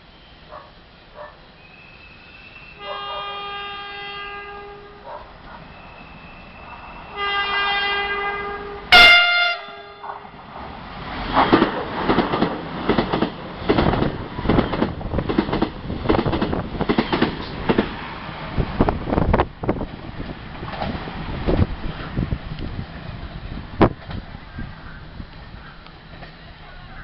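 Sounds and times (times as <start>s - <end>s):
train horn: 1.7s - 10.2s
train wheels clattering over rails: 10.0s - 18.8s.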